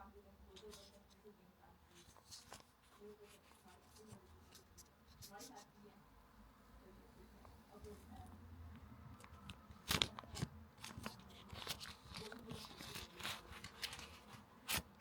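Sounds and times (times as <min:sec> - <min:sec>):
paper and plastic rustling: 0:00.5 - 0:01.3, 0:01.9 - 0:05.7, 0:09.1 - 0:15.0.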